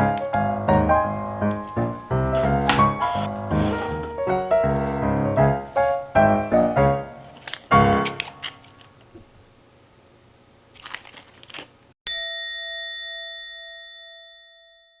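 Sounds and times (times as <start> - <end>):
faint clicks and handling noise: 7.2 - 9.2, 10.8 - 11.8
bell-like metallic ding: 12.1 - 15.0.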